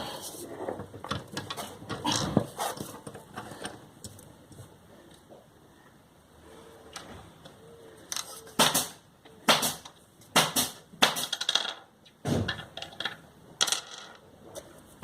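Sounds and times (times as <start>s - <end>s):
hard objects knocking and clattering: 10.4s - 14.2s.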